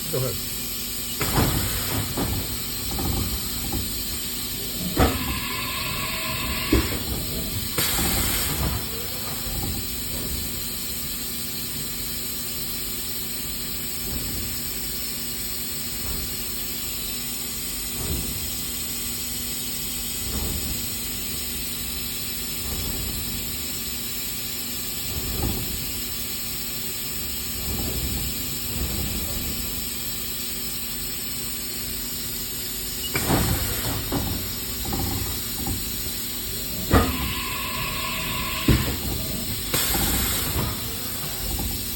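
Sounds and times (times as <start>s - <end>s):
machine hum and hiss: 0.0s - 41.9s
machine clunks: 1.2s - 10.4s, 33.1s - 41.9s
air hiss blast: 4.1s - 9.5s, 36.6s - 41.9s
short machine whine: 4.5s - 9.7s, 36.4s - 41.9s.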